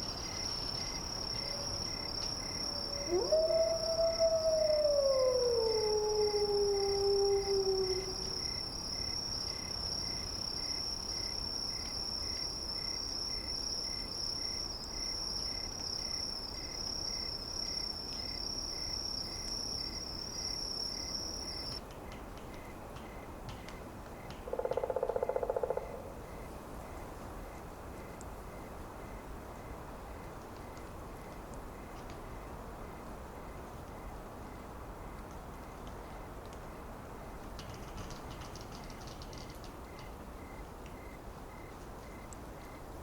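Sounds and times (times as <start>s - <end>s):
falling howl: 2.6s - 8.4s.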